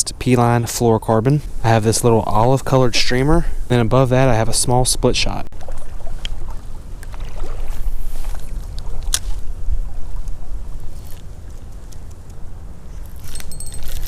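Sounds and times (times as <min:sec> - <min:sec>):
wind rumble on microphone: 0:00.0 - 0:14.0
creek water running: 0:01.5 - 0:11.8.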